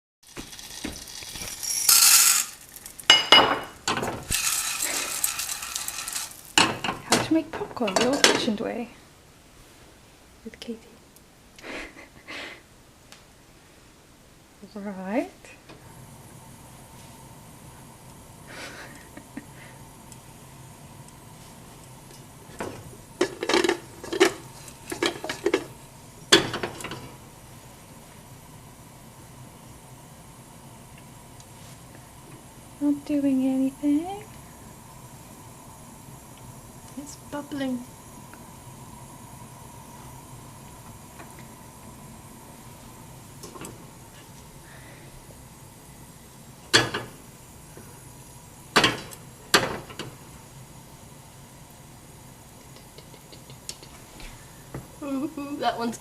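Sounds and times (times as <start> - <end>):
short rustling hiss: 0.3 - 3.2
metal pan and utensils clattering: 0.5 - 8.5, 22.7 - 25.7, 26.3 - 27.1
metal saucepan and lid clattering: 22.7 - 25.7, 26.3 - 27.1.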